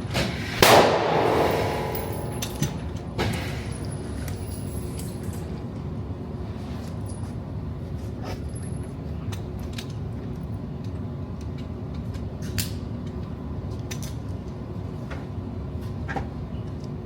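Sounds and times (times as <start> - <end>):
low rumble: 0.6 - 3.9.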